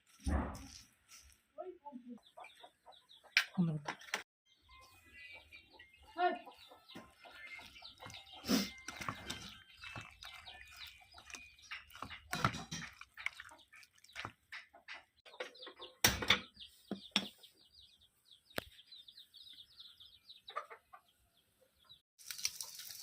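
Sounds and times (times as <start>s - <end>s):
birds chirping: 1.6s - 22.0s.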